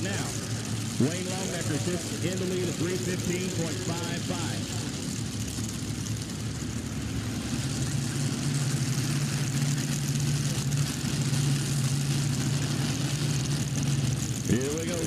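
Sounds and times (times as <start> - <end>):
tractor engines running: 0.0 - 15.0.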